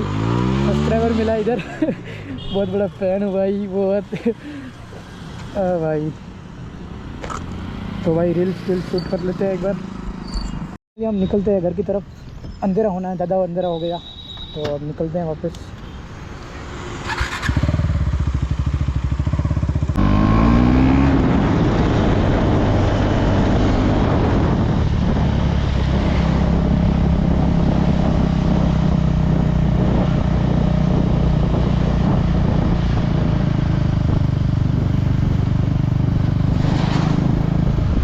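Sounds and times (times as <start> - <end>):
motorcycle engine revving: 0.0 - 1.6, 7.0 - 10.3, 16.7 - 38.0.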